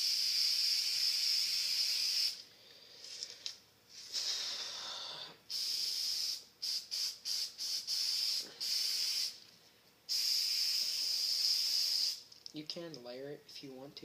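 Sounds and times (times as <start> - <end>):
aerosol spray can hissing: 0.0 - 2.4, 5.5 - 9.4, 10.1 - 12.3.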